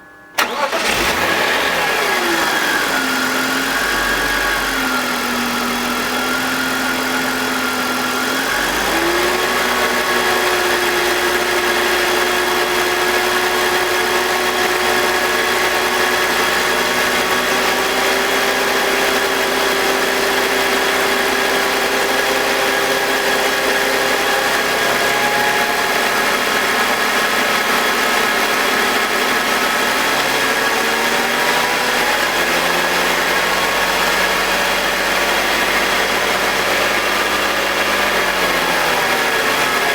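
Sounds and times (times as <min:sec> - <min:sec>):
car engine idling: 0:00.4 - 0:08.8.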